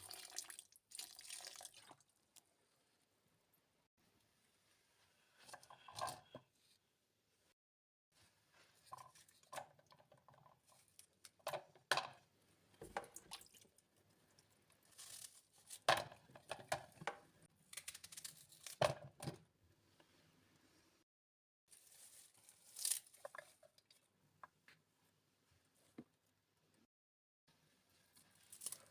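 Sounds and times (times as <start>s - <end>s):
rustling and crinkling: 21.7s - 24.1s.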